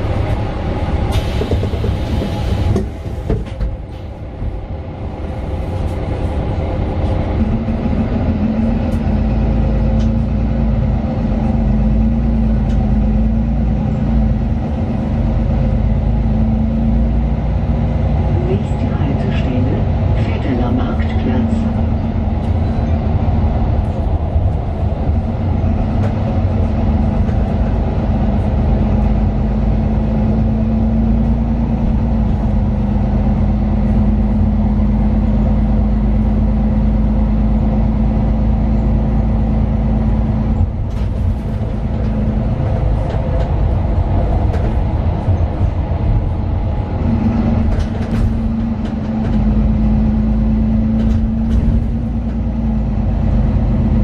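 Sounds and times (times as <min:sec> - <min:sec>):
bus diesel engine rumble: 0:00.0 - 0:54.0.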